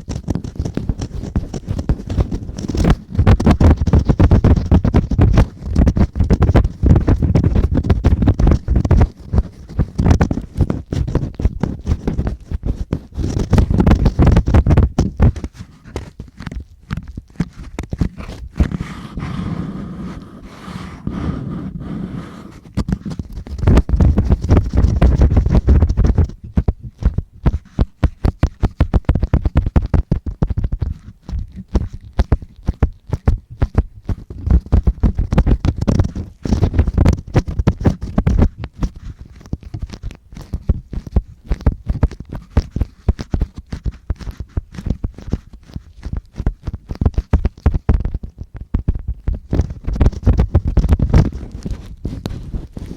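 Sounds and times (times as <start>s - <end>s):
tools scratching microphone: 0.0s - 52.9s.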